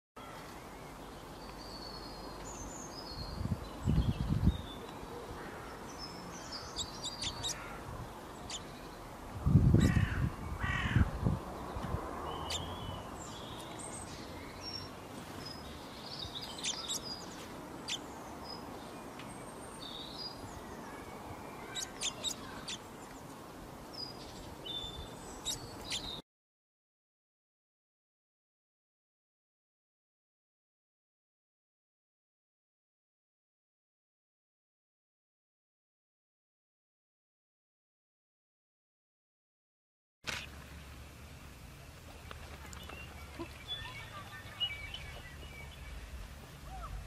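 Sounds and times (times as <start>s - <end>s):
small birds chirping: 0.2s - 26.2s, 40.3s - 47.0s.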